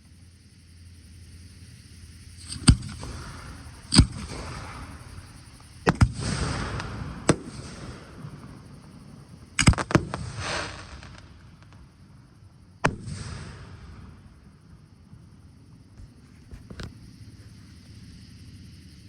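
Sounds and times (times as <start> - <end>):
crackling hiss of fireworks: 0.0 - 19.0
firework shells bursting: 2.4 - 14.6.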